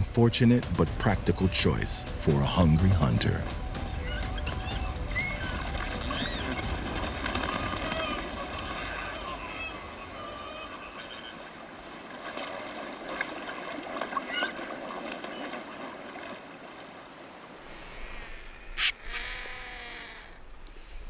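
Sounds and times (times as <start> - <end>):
flamingos honking: 0.0 - 11.8
water splashing: 0.0 - 18.0.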